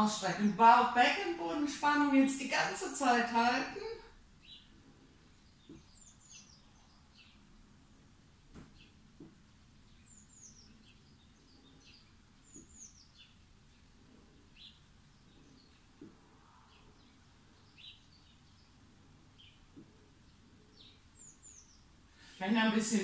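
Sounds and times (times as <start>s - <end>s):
faint bird chirps: 9.8s - 22.4s.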